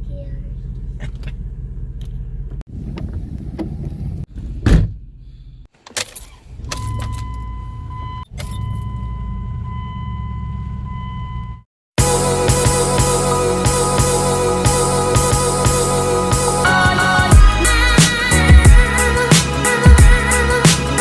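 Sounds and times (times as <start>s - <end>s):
car engine and road rumble: 0.0s - 11.7s.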